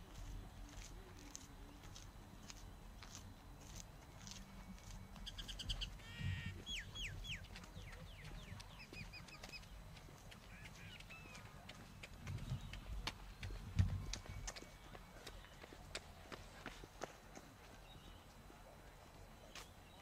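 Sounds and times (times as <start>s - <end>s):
footsteps: 0.0s - 19.8s
birds chirping: 4.1s - 20.0s.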